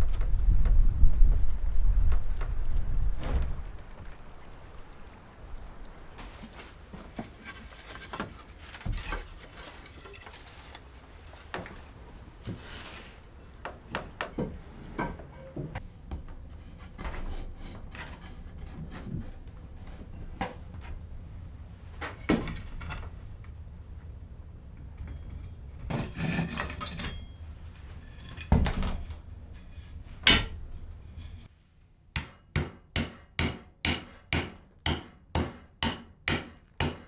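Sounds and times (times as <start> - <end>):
steady low rumble: 0.0 - 6.1.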